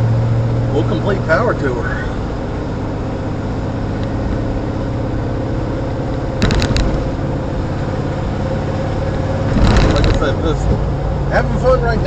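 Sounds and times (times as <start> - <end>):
car engine drone: 0.0 - 12.0
road noise on rough road: 0.0 - 12.0
sharp rattles: 6.4 - 10.6.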